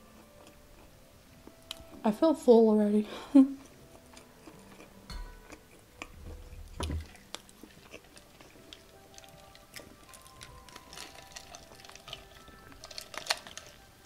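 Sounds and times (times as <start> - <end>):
soft chewing with clicks: 0.0 - 2.0, 3.6 - 14.0
glass knocking: 5.1 - 5.4.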